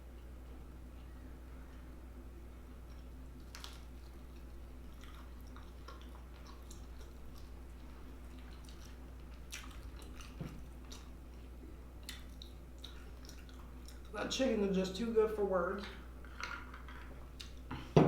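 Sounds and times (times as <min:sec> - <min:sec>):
steady low hum: 0:00.0 - 0:18.0
chewing crunchy food: 0:00.1 - 0:14.2, 0:16.2 - 0:18.0.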